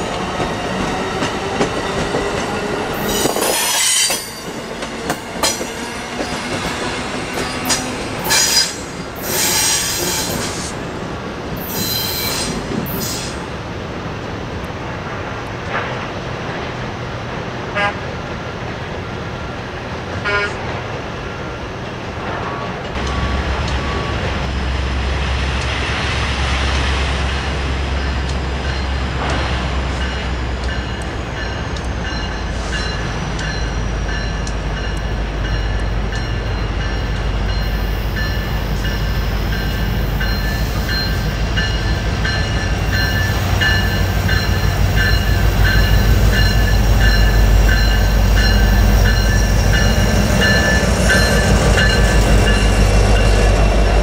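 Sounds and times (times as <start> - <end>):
train horn toots: 17.7 - 18.1, 20.2 - 20.7
locomotive engine rumble: 21.9 - 54.0
steady high tones: 30.0 - 54.0.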